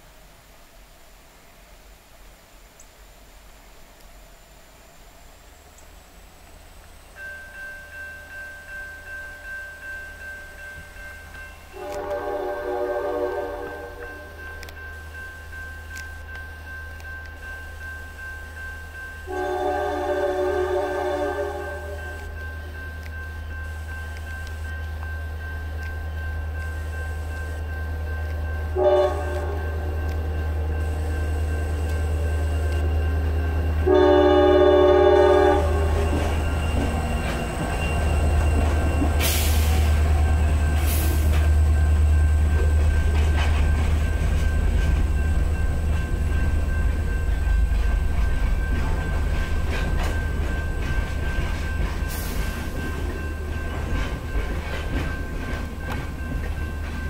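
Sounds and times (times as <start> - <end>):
locomotive rumble passing: 11.3 - 57.0
locomotive horn blast: 11.8 - 14.4, 19.3 - 22.4, 28.7 - 36.9
train wheels clattering over rails: 35.2 - 57.0.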